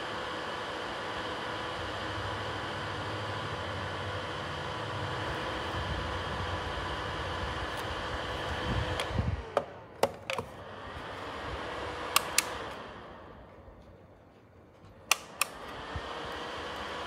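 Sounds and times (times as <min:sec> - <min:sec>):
heater fan humming: 0:00.0 - 0:17.0
plastic control clicks: 0:12.1 - 0:12.6, 0:15.0 - 0:15.7.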